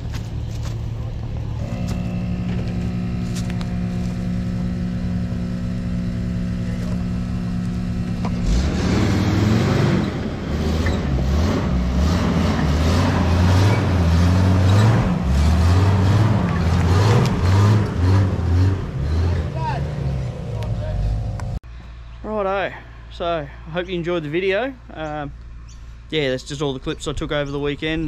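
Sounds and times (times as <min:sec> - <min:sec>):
car engine revving: 0:01.1 - 0:21.6.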